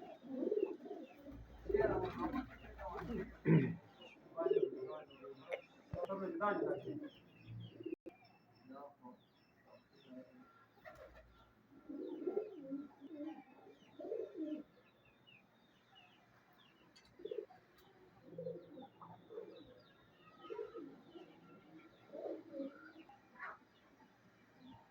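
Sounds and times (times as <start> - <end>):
pigeons cooing: 0.0 - 5.7, 6.3 - 8.0, 10.7 - 14.8, 16.7 - 23.8
small birds chirping: 0.0 - 24.9.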